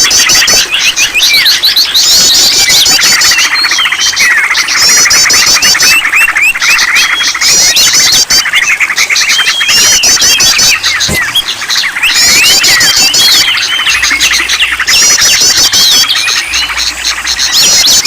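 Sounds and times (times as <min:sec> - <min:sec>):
songbirds chorus: 0:00.0 - 0:18.0.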